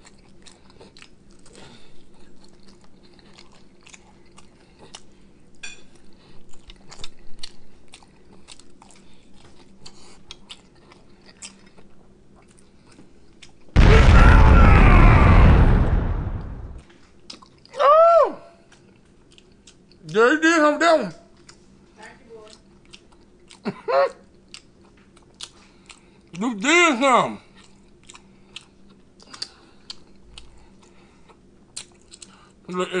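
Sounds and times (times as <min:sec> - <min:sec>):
chewing and crunchy bites: 0:00.0 - 0:16.1, 0:17.2 - 0:17.8, 0:18.7 - 0:20.2, 0:22.4 - 0:26.4, 0:27.4 - 0:32.7
rushing burst sound effect: 0:13.8 - 0:16.8.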